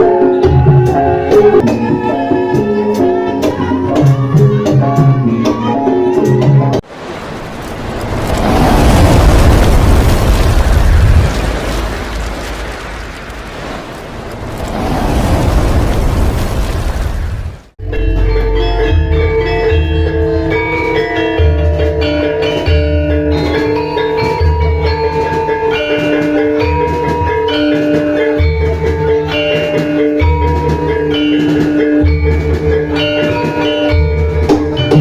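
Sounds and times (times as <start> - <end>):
gamelan music: 0.0 - 6.8, 17.8 - 35.0
metallophones ringing held notes: 0.0 - 6.8, 17.8 - 35.0
steady low beat: 17.8 - 23.2.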